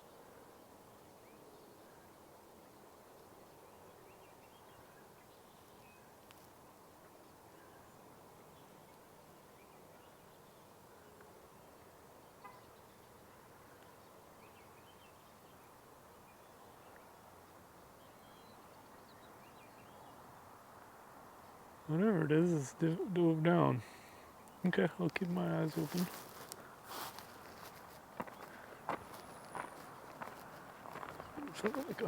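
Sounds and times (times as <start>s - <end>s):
low hiss: 13.6s - 32.0s
distant bird chirps: 21.4s - 32.0s.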